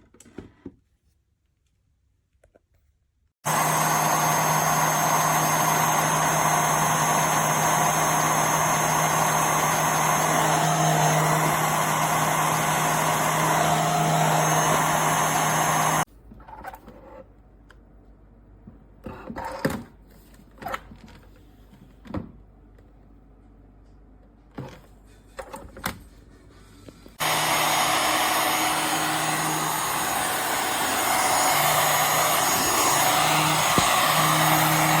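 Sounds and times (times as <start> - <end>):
vacuum cleaner running: 3.4 - 16.1, 27.2 - 35.0.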